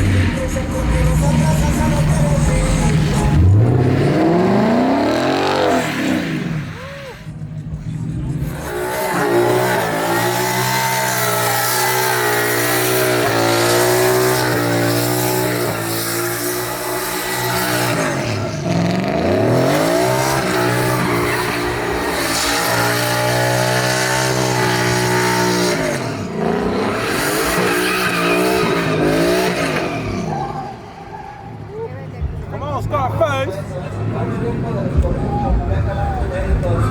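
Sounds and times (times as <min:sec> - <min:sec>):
truck engine revving: 0:00.0 - 0:31.8
tyres spinning and squealing: 0:08.1 - 0:33.5.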